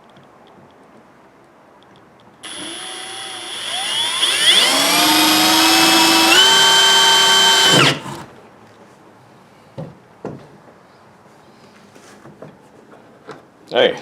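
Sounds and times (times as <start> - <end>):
drill hole saw cutting plastic: 2.4 - 8.3.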